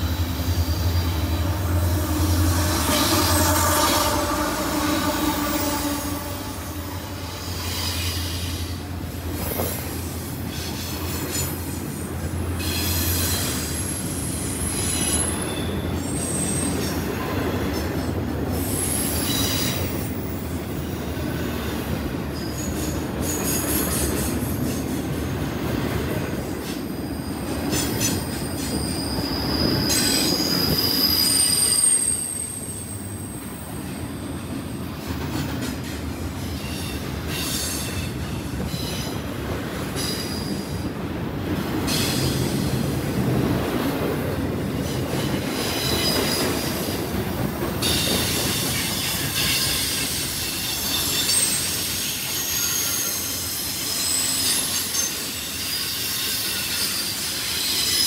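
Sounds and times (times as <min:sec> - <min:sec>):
freight train rumbling: 0:00.0 - 0:58.0
wheels squealing: 0:26.9 - 0:34.4, 0:47.8 - 0:58.0.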